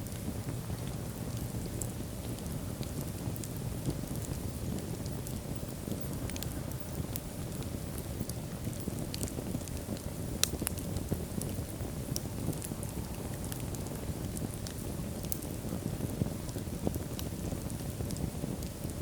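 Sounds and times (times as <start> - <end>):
wood fire crackles and pops: 0.0 - 19.0
fire flames rushing: 0.1 - 19.0.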